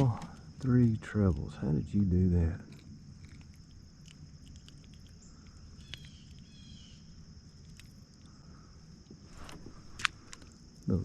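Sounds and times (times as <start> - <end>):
insects droning: 0.0 - 11.0
faint clicks: 2.7 - 6.5
bird chirps: 5.1 - 7.2.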